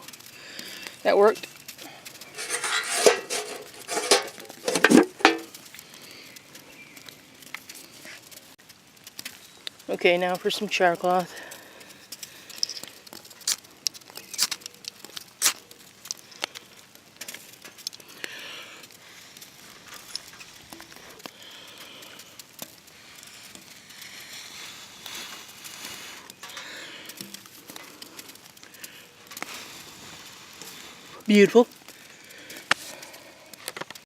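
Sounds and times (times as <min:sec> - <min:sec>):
cloth rustling and crinkling: 0:01.5 - 0:05.8.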